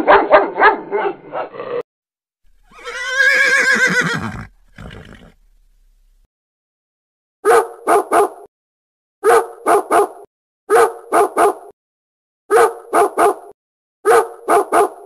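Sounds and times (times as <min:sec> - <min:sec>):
dog barking: 0:00.0 - 0:01.7, 0:07.4 - 0:08.5, 0:09.2 - 0:11.7, 0:12.5 - 0:15.0.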